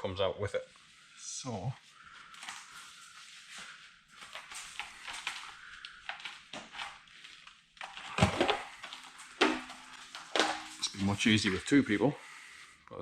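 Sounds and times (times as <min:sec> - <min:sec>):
rubber seal rubbing and scraping: 0:07.8 - 0:11.8.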